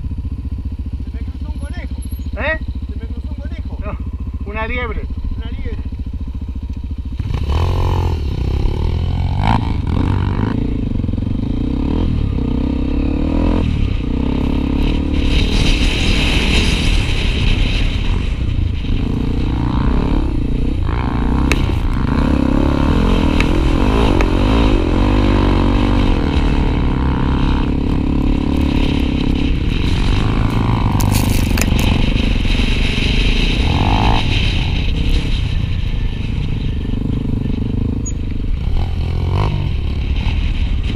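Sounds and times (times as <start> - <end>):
motorcycle engine revving: 0.0 - 40.9
rattling and scraping: 26.0 - 40.9.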